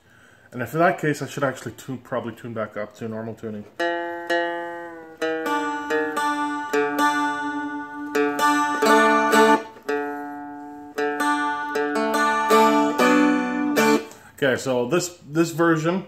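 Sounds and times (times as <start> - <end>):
guitar strings strummed: 3.6 - 14.3.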